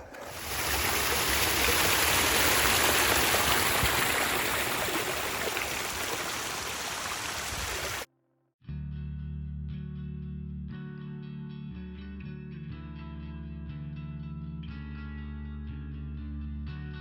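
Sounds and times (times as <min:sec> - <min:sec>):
stream water rushing: 0:00.0 - 0:08.1.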